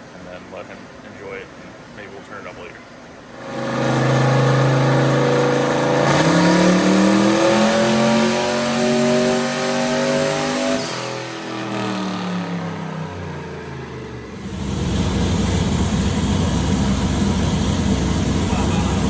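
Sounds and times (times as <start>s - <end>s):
turbocharged engine revving under load: 3.3s - 19.0s.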